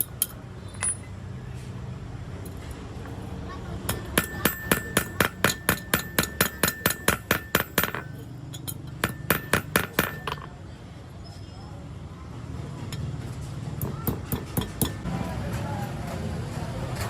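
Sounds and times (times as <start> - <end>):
hammer striking metal: 3.8 - 10.5, 13.8 - 15.0.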